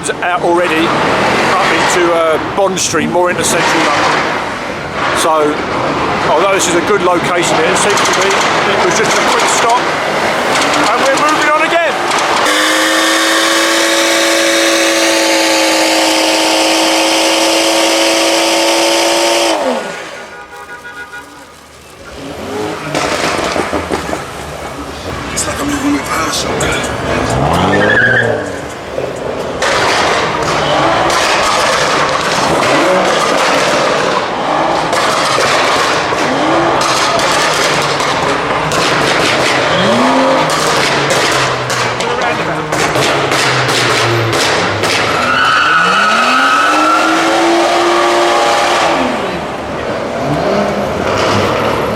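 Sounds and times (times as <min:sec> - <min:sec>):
car engine revving: 0:00.0 - 0:51.9
exhaust pops and bangs: 0:03.3 - 0:25.5, 0:28.6 - 0:45.4.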